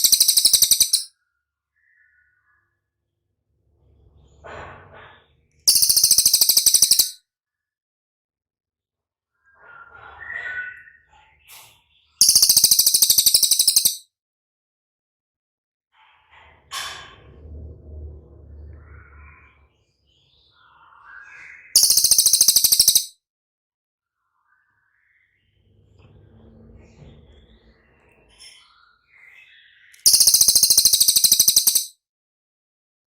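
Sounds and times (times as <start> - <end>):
bird trilling: 0.0 - 1.1, 5.7 - 7.2, 12.2 - 14.0, 21.8 - 23.1, 30.0 - 31.9
soft bird chirping: 0.0 - 1.1, 5.7 - 7.2, 12.2 - 14.0, 21.6 - 23.1, 27.2 - 31.9.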